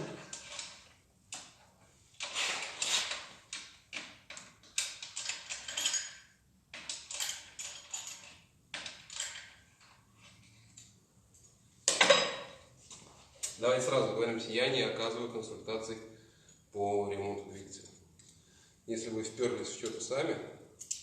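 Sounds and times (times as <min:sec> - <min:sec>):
metal parts scraping: 0:02.2 - 0:03.3.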